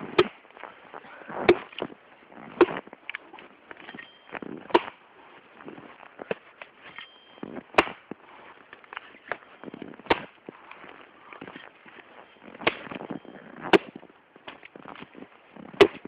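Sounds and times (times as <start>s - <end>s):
axe chopping firewood: 0.0s - 0.4s, 1.4s - 1.9s, 2.5s - 5.0s, 6.2s - 10.5s, 12.5s - 15.1s, 15.7s - 16.0s.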